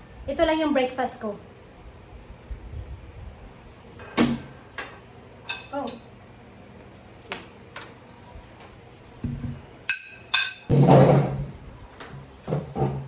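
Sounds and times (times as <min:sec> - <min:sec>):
tableware knocking and clinking: 0:09.9 - 0:11.4.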